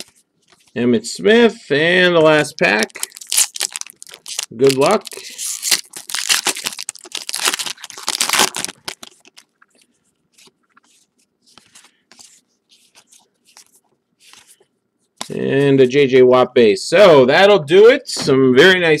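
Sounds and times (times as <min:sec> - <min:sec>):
cards rustling: 0:02.4 - 0:14.6
wrapper tearing and crinkling: 0:02.6 - 0:09.6.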